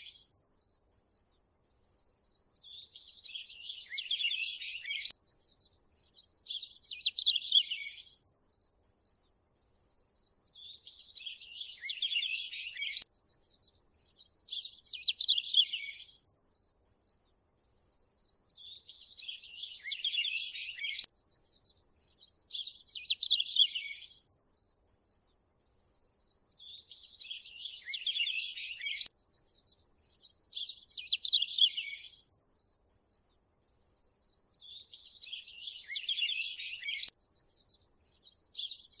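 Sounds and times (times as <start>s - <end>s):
birds chirping: 26.8s - 29.1s.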